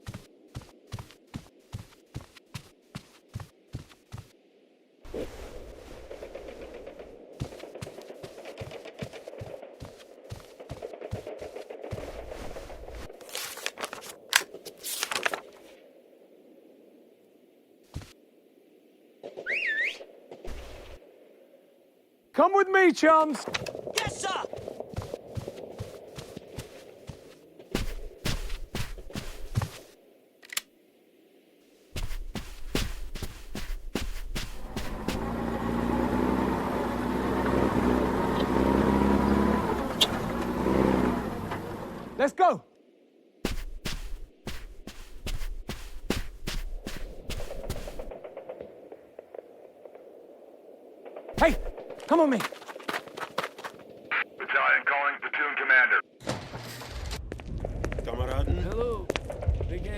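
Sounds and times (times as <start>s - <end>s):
vehicle engine idling: 34.6s - 42.2s.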